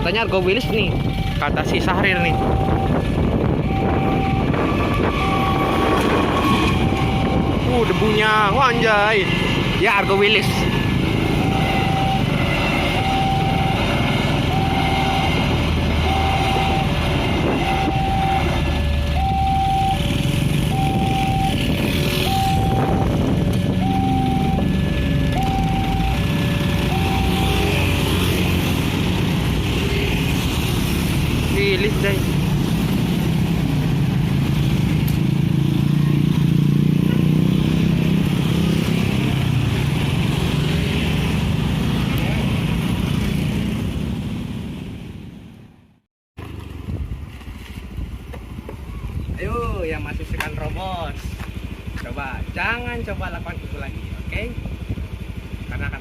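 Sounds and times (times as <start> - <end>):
low traffic rumble: 0.0 - 56.0
level crossing alarm two-tone: 0.6 - 3.0, 3.6 - 9.1, 11.2 - 28.0.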